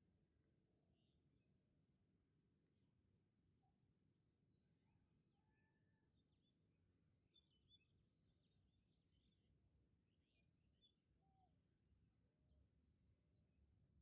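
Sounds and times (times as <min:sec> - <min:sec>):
faint birds chirping: 0:03.3 - 0:14.0.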